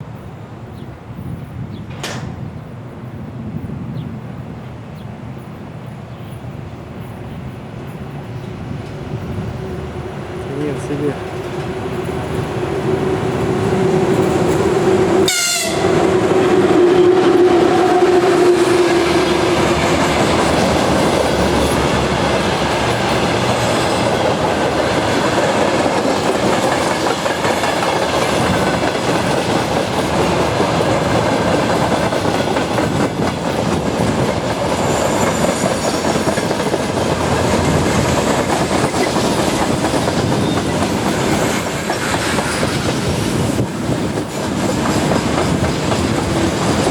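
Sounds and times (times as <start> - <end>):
train wagons rushing past: 0.0 - 46.9
wheels clacking over rail joints: 1.8 - 2.8, 10.4 - 46.9
locomotive horn: 15.2 - 19.2
high wheel squeal: 34.7 - 36.5.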